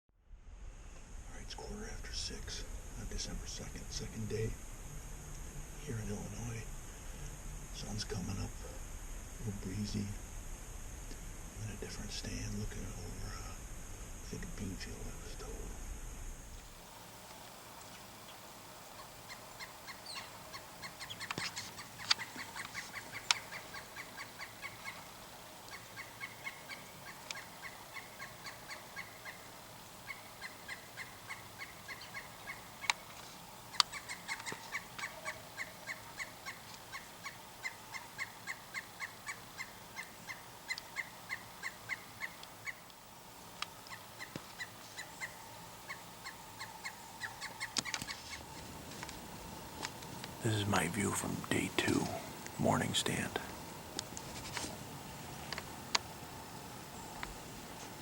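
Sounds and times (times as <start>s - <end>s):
bird calling in rapid notes: 17.8s - 42.9s, 43.8s - 48.6s.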